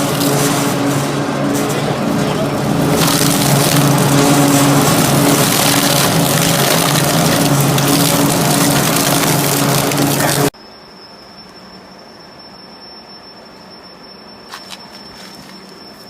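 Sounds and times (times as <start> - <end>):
metal shredder grinding: 0.0 - 10.5
motor hum: 0.0 - 10.5.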